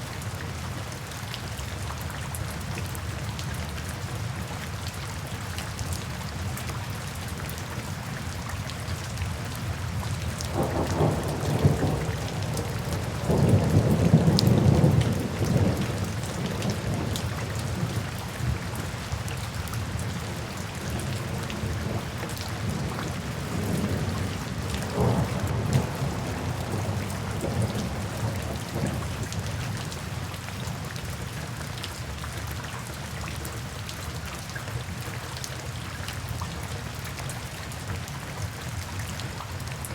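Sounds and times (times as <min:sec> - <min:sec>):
steady rain falling: 0:00.0 - 0:39.9
thunder rumbling: 0:10.5 - 0:17.1, 0:22.6 - 0:29.4.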